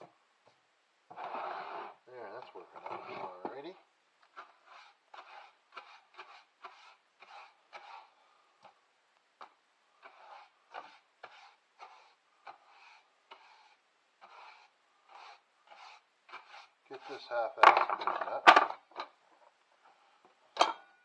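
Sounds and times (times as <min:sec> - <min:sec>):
hand rubbing and scraping strokes: 0:01.1 - 0:17.6.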